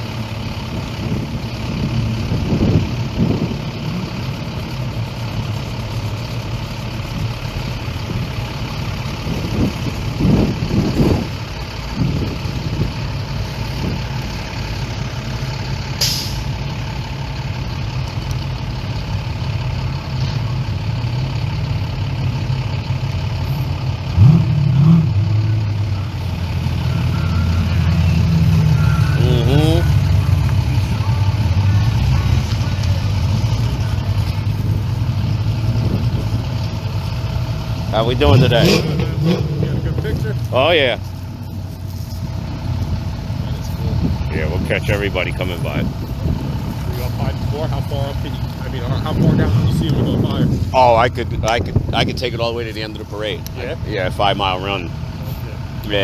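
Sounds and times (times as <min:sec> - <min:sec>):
car and truck engines idling: 0:00.0 - 0:56.0
engines revving: 0:00.0 - 0:56.0
brief sharp hiss: 0:16.0 - 0:16.5.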